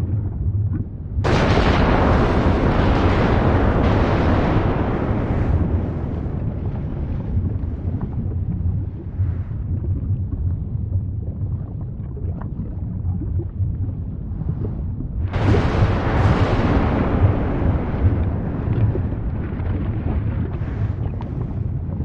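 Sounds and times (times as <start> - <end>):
volcanic eruption rumbling: 1.0 - 11.1, 14.5 - 22.0.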